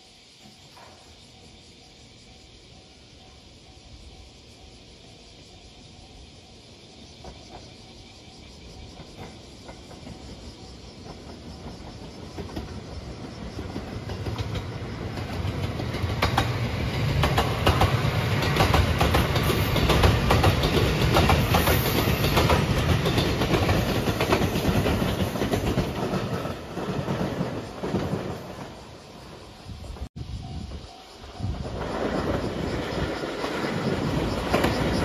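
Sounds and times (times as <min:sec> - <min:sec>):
electric train rumbling: 0:00.0 - 0:35.0
wheels clacking over rail joints: 0:08.9 - 0:28.8.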